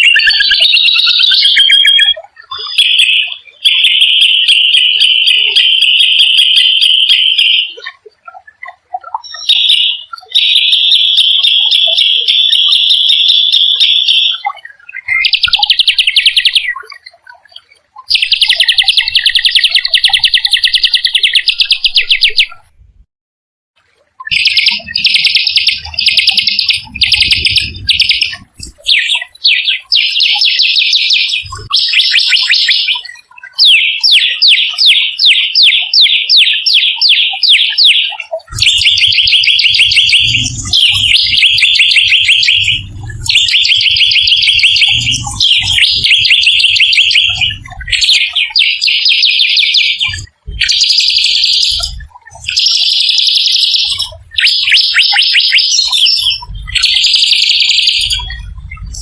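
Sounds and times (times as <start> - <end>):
songbird singing harsh trills: 0.0 - 22.7, 24.3 - 59.0
low rumble: 26.8 - 28.7, 39.8 - 46.7.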